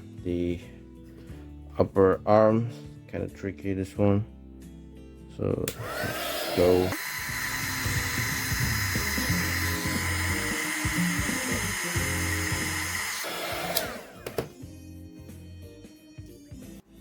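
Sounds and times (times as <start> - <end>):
heat gun blowing air: 5.7 - 14.5.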